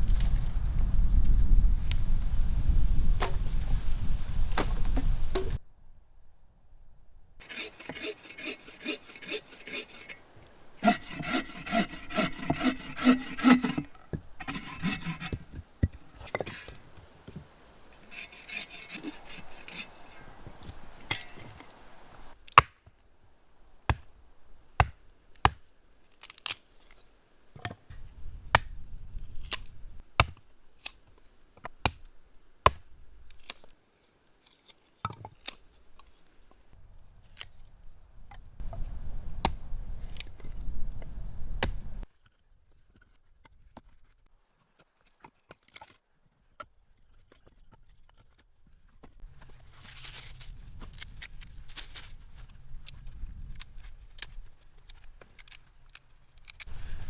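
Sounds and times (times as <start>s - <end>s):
scraping strokes on wood: 7.4s - 22.3s.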